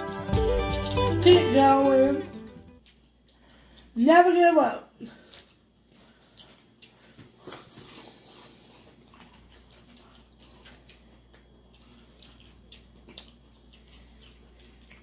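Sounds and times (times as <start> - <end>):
wet chewing: 2.7 - 4.0, 5.0 - 15.0.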